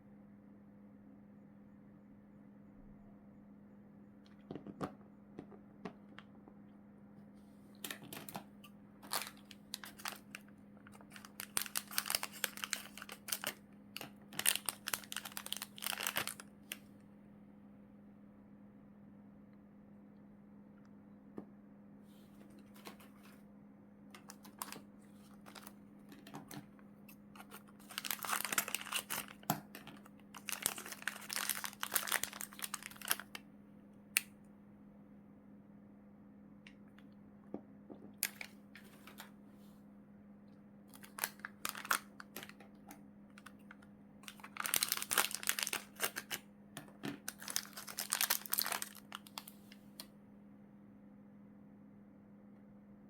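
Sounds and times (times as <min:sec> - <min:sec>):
plastic packaging crinkling: 0:09.0 - 0:16.9, 0:24.2 - 0:26.7, 0:27.3 - 0:33.4, 0:38.2 - 0:39.3, 0:40.9 - 0:42.6, 0:43.4 - 0:49.8.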